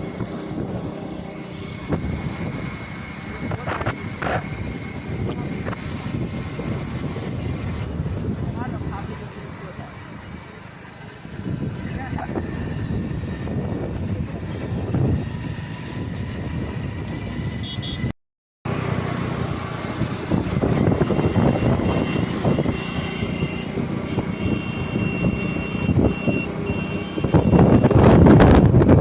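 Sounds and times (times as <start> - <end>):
vehicle engines running: 0.0 - 18.1, 18.7 - 29.0.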